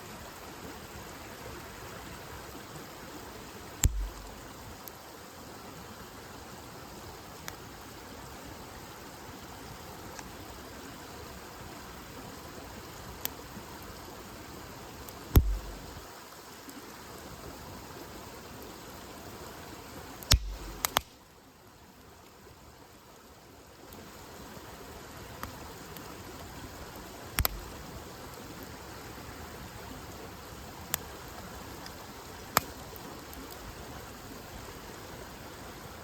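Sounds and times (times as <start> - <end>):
campfire hissing: 0.0 - 36.0
burning wood crackling and popping: 3.7 - 5.0, 15.0 - 16.0, 20.2 - 21.2, 25.4 - 28.8, 30.9 - 33.7.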